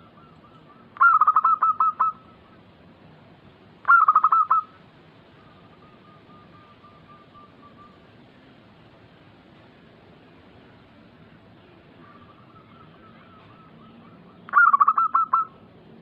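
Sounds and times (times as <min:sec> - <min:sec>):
dove cooing: 0:00.0 - 0:02.6, 0:03.8 - 0:04.8, 0:12.0 - 0:15.7.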